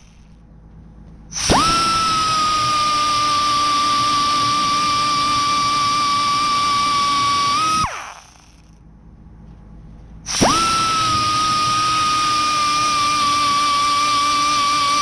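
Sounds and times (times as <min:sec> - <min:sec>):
die grinder whining: 0:01.3 - 0:08.8, 0:10.3 - 0:15.0.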